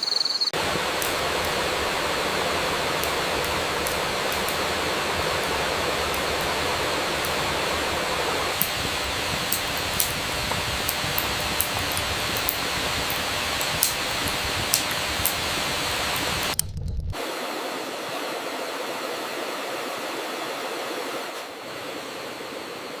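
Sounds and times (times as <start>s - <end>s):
rain hiss: 0.6s - 16.6s
campfire crackling: 0.6s - 17.2s.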